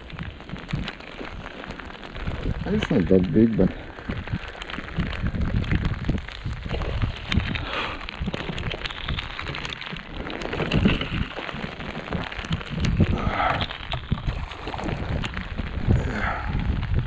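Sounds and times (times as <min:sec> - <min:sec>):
rain falling on water: 0:00.0 - 0:17.0
raindrop ticks: 0:00.0 - 0:17.0.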